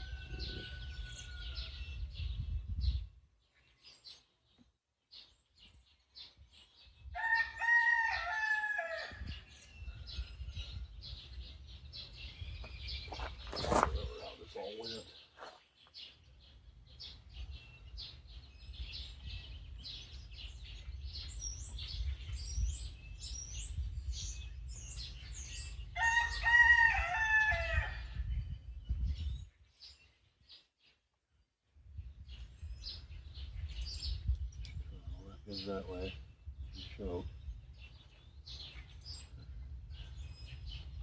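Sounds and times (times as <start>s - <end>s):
rooster crowing: 0.0s - 2.0s, 7.2s - 9.3s, 26.0s - 28.1s
small birds chirping: 0.0s - 41.0s.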